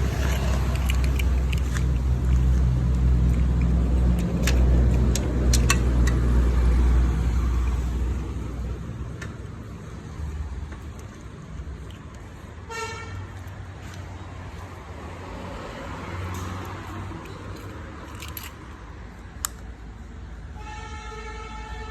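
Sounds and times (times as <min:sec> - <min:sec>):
motorcycle engine rumbling: 0:00.0 - 0:08.5.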